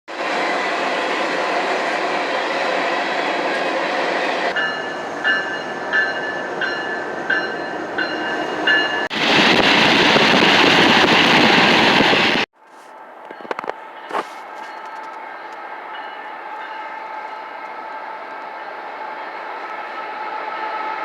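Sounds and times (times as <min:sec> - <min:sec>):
passing train rumble: 0:00.1 - 0:21.0
bell ringing: 0:04.6 - 0:09.1.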